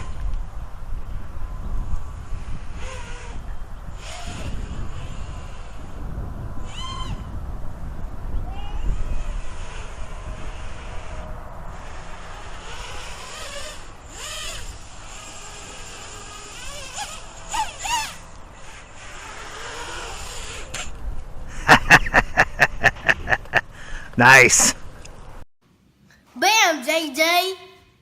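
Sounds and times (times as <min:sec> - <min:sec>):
quadcopter motors: 0:00.0 - 0:22.0.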